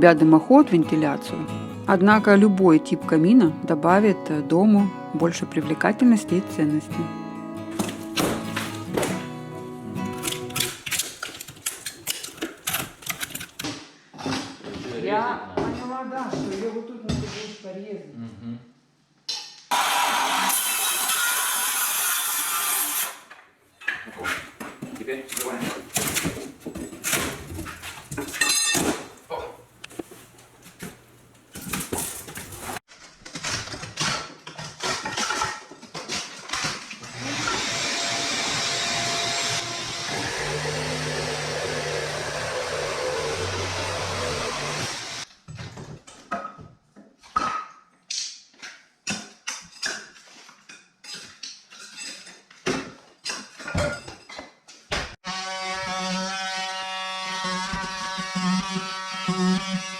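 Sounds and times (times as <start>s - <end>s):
breaking tile and masonry clattering: 7.7s - 9.3s, 10.1s - 13.8s, 23.8s - 29.2s, 31.5s - 37.0s, 49.0s - 54.5s
motorised tool running: 37.1s - 45.2s.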